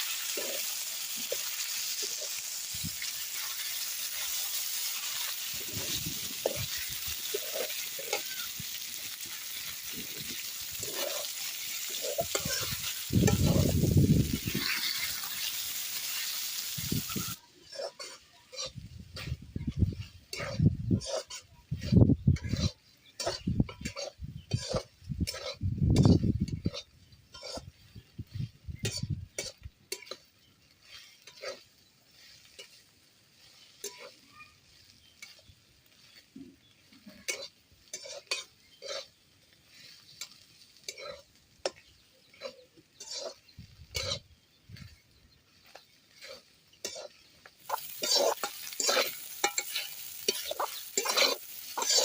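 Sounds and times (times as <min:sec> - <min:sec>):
loud frying sizzle: 0:00.0 - 0:52.0
spatula scraping in cooking pot: 0:00.1 - 0:36.3, 0:36.9 - 0:44.9, 0:45.6 - 0:52.0.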